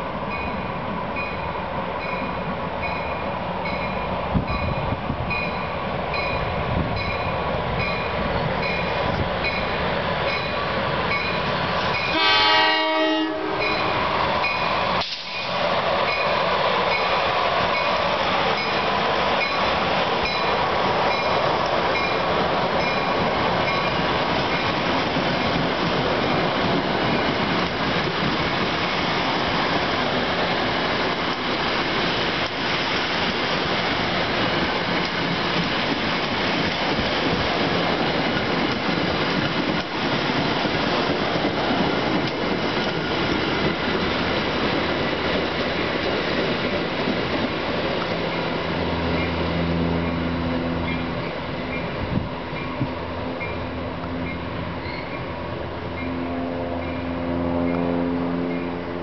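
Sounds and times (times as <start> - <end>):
locomotive horn blast: 12.1 - 13.9, 56.1 - 59.0
train wheels rumbling and clattering: 13.5 - 59.0.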